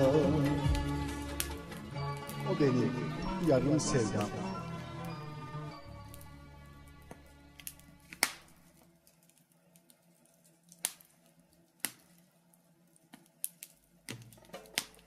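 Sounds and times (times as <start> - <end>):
song: 0.0 - 7.0
wood fire crackling: 0.0 - 15.0
sharp pops: 7.6 - 8.5.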